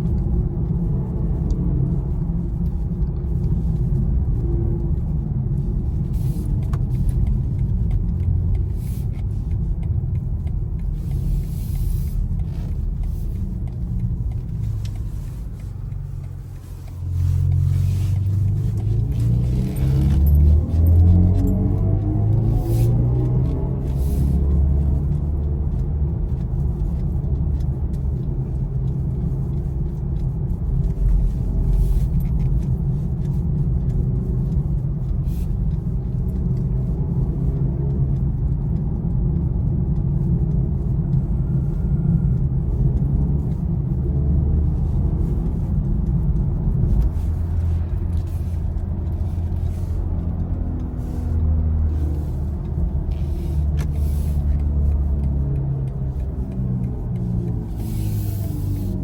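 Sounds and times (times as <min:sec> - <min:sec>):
road and tyre noise: 0:00.0 - 0:59.0.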